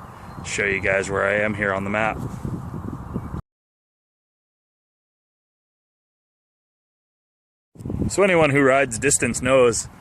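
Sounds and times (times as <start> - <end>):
low wind rumble on microphone: 0.0 - 3.4, 7.8 - 10.0.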